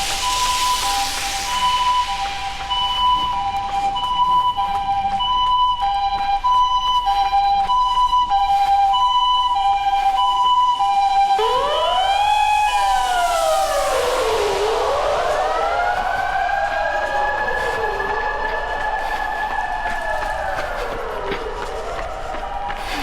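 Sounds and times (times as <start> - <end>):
rush of passing noise: 0.0 - 4.8, 11.2 - 23.0
two-tone siren: 0.0 - 23.0
wailing siren: 0.0 - 23.0.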